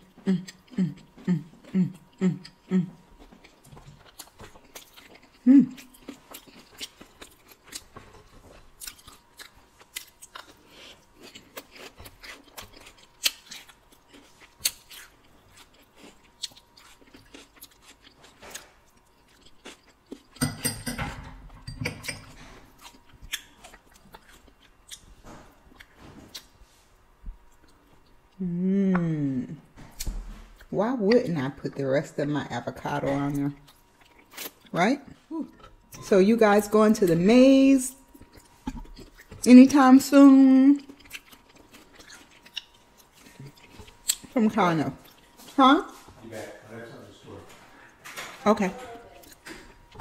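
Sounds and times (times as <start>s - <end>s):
wet chewing and smacking: 0.0s - 28.4s, 33.3s - 34.8s, 38.0s - 46.2s.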